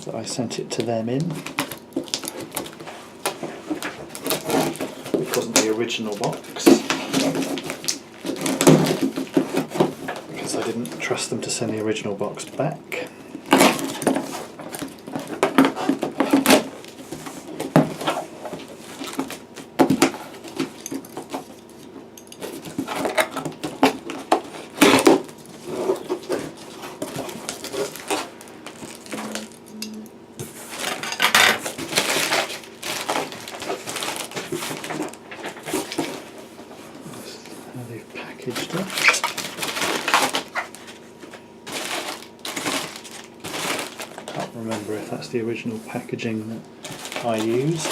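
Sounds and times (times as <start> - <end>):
packaging rustling: 0.8 - 12.7, 13.3 - 29.7, 30.5 - 37.6, 38.4 - 45.2, 46.6 - 47.9.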